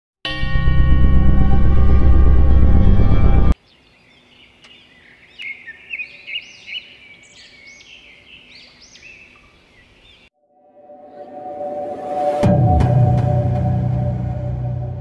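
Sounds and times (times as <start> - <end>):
birds chirping: 3.6 - 10.3.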